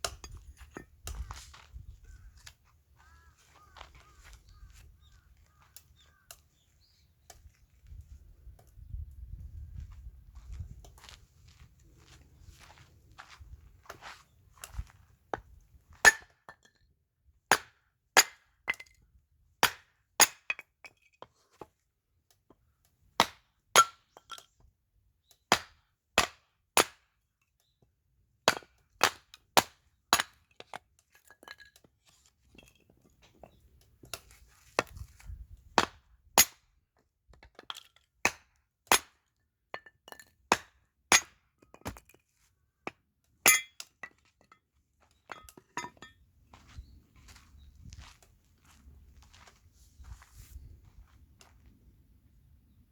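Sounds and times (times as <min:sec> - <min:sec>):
axe splitting firewood: 0:19.6 - 0:20.6, 0:25.5 - 0:27.0, 0:28.4 - 0:30.8, 0:35.8 - 0:36.6, 0:37.5 - 0:39.2, 0:40.5 - 0:42.2.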